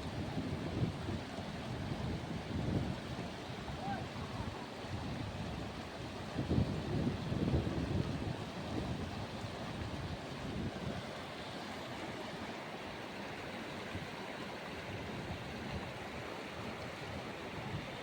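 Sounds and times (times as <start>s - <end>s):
rushing whitewater: 0.8s - 18.0s
wind buffeting microphone: 4.2s - 10.9s.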